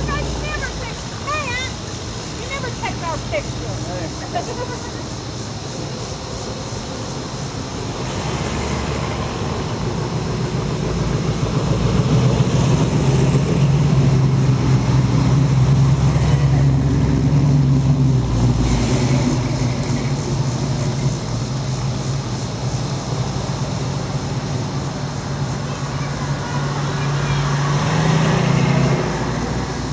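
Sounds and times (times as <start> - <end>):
car engine rumbling driving past: 7.8 - 29.9.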